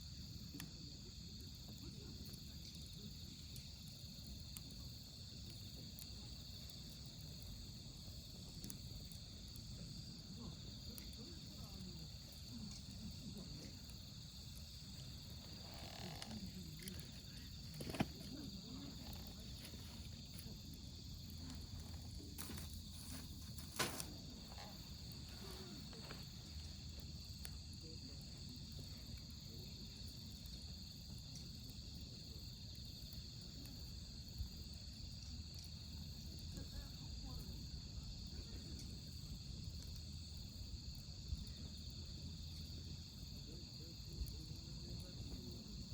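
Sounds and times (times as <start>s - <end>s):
campfire burning: 0.0s - 45.9s
crickets and insects chirping: 0.0s - 45.9s
wood popping: 12.0s - 27.6s.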